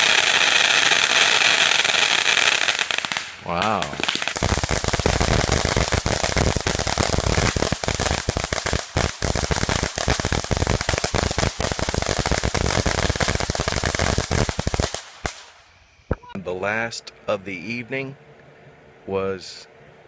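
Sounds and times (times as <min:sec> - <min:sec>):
fireworks bangs and crackles: 0:00.0 - 0:16.2.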